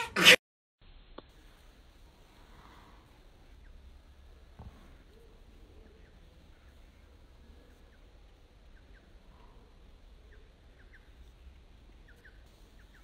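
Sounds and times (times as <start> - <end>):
faint bird chirps: 4.6 - 13.0.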